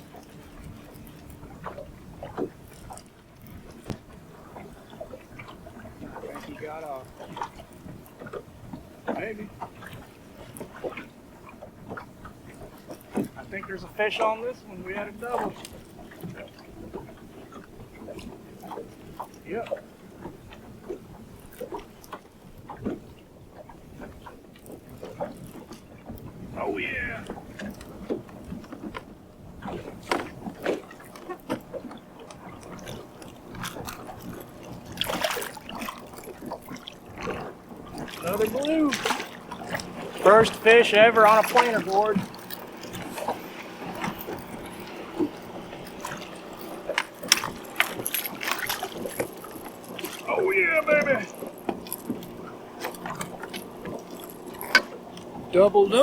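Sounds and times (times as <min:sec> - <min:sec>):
knocks and clicks in boat: 0:00.0 - 0:56.0.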